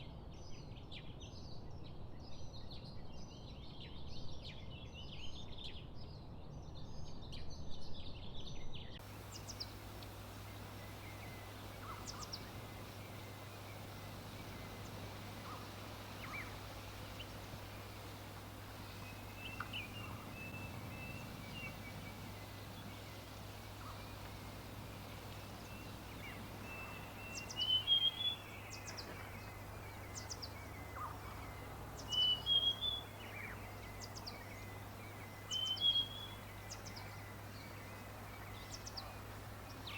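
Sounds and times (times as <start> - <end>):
birds twittering and chirping: 0.3 - 39.9
steady low hum: 9.0 - 39.9.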